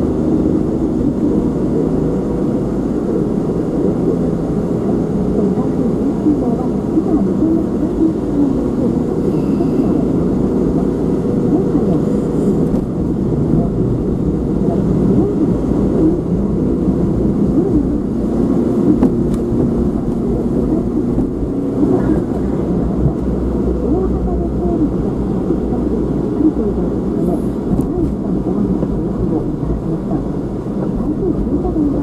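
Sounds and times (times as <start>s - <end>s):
car engine and road noise: 0.0s - 32.0s
muffled voice talking: 17.4s - 32.0s.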